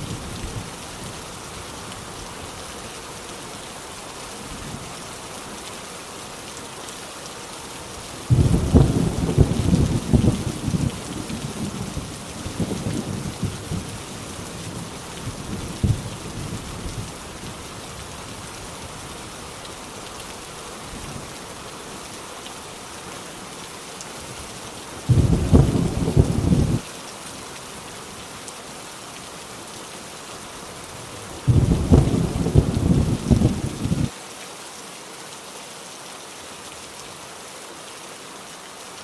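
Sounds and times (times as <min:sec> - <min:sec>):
heavy rain on a tin roof: 0:00.0 - 0:39.0
thunder rumbling: 0:08.3 - 0:13.9, 0:25.1 - 0:26.8, 0:31.5 - 0:34.1
loud low thunder burst: 0:25.1 - 0:26.8, 0:31.5 - 0:34.1.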